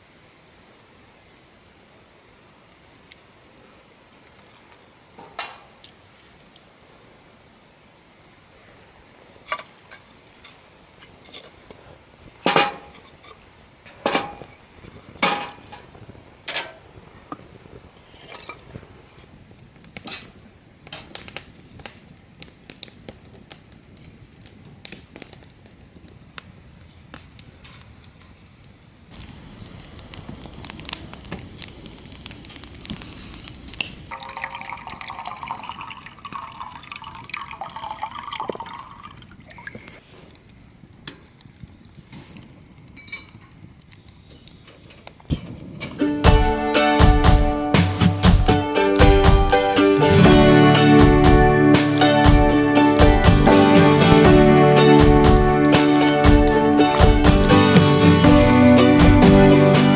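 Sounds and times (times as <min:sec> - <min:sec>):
liquid pouring into a vessel: 0:34.1 - 0:39.7.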